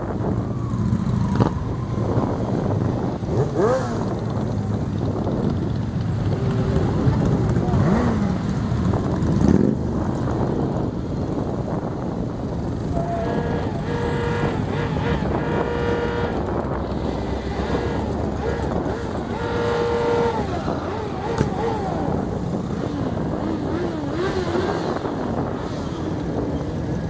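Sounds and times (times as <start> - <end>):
motorcycle engines running: 0.0 - 27.0
motorcycle revving: 0.0 - 27.0
voices: 1.2 - 27.0
long steady tone: 12.9 - 22.6.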